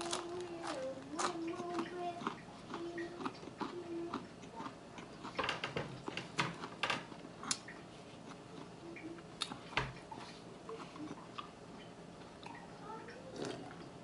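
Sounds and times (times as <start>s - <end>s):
wet chewing clicks: 0.0s - 10.2s.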